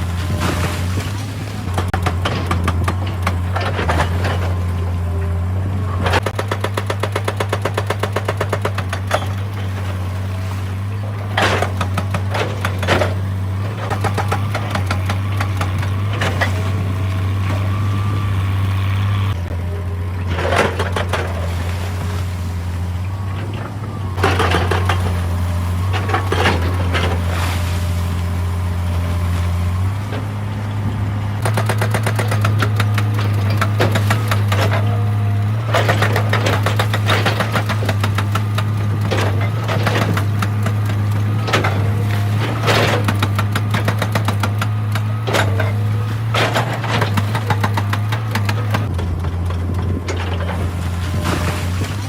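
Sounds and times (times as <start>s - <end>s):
excavator diesel engine running: 0.0s - 52.0s
bucket clattering and scraping rock: 44.8s - 52.0s.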